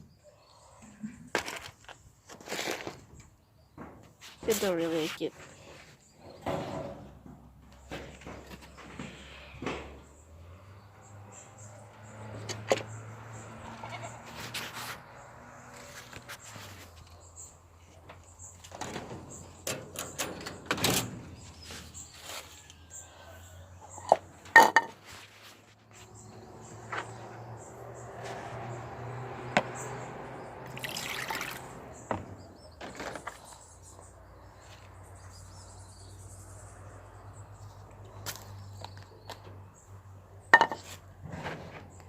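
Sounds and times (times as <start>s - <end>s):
pouring: 30.6s - 32.0s.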